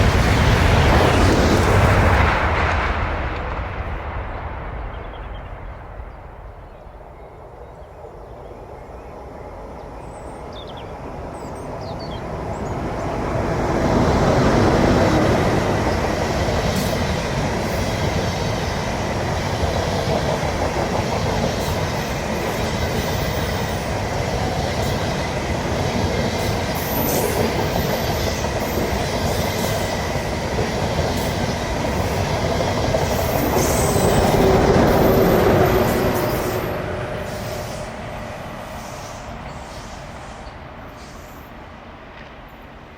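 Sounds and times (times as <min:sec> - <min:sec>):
train rumbling past: 0:00.0 - 0:42.9.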